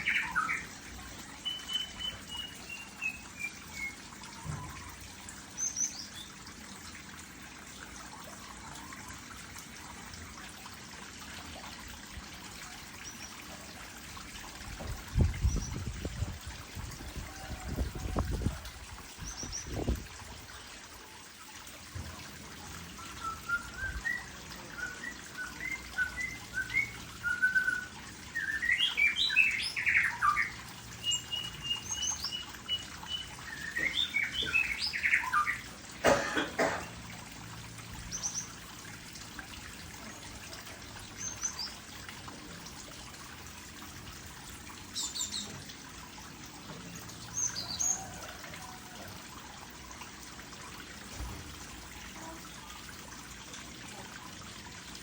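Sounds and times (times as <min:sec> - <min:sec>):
songbirds chirping: 0:00.0 - 0:07.0, 0:22.3 - 0:35.8
trickle of water: 0:00.0 - 0:55.0.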